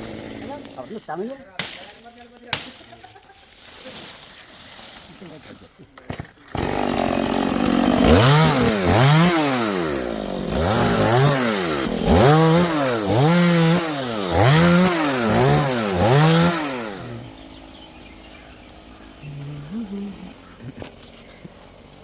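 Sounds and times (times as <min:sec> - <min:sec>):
chainsaw revving: 0:00.0 - 0:01.3, 0:06.5 - 0:22.0.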